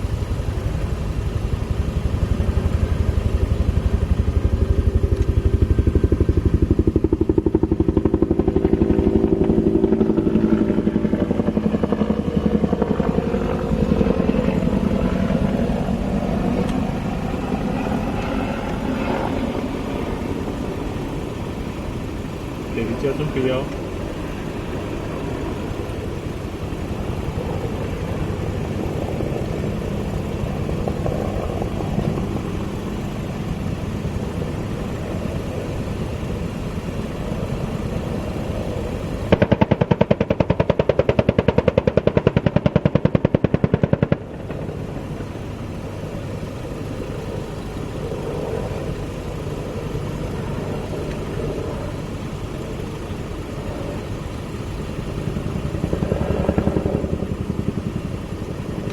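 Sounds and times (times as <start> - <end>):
engine-like rumble: 0.0 - 58.9
machine-gun fire: 39.3 - 44.3.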